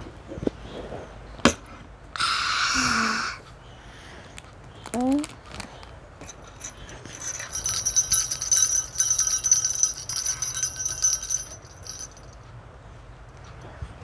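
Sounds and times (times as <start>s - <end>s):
small bells jingling: 6.2s - 12.4s.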